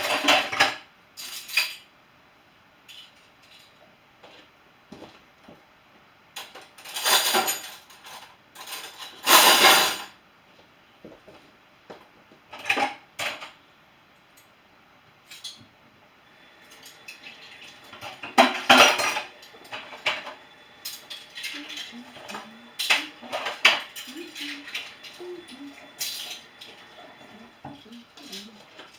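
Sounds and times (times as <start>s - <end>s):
dishes and cutlery clattering: 0.0s - 1.9s, 6.4s - 10.2s, 12.5s - 13.6s, 16.6s - 28.9s.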